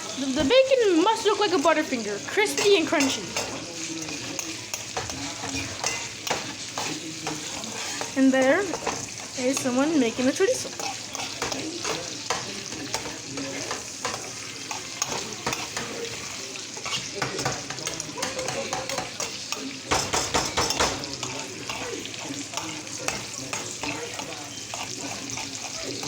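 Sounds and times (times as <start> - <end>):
bacon sizzling in a frying pan: 0.0 - 26.0
fork scraping a pan: 1.2 - 26.0.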